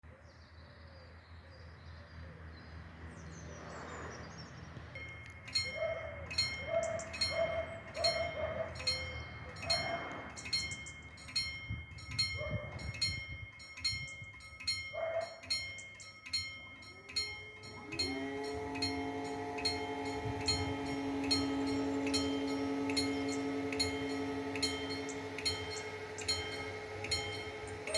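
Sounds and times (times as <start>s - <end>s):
birdsong: 0.0s - 13.1s, 13.7s - 27.9s
level crossing bell dinging: 5.0s - 27.9s.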